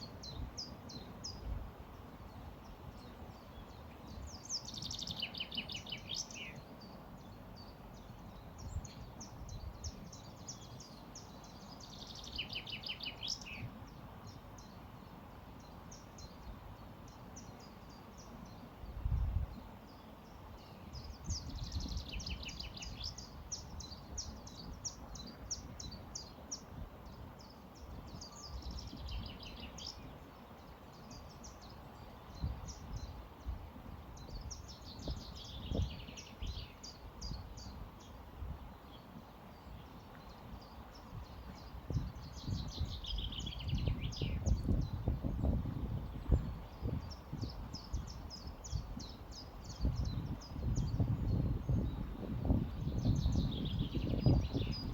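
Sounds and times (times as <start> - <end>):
birds chirping: 0.0 - 54.9
songbird trilling: 2.2 - 13.7, 20.6 - 30.4, 46.0 - 54.9.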